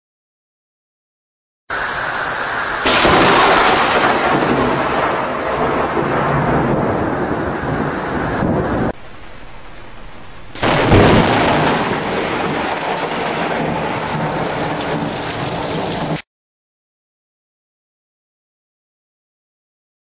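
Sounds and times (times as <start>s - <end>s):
steady rain: 1.7s - 16.2s
thunder rumbling: 1.7s - 16.2s.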